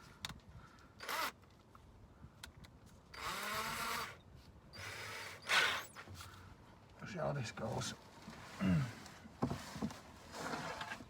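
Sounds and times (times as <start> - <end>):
power tool wire wheel scratching: 4.8 - 6.0.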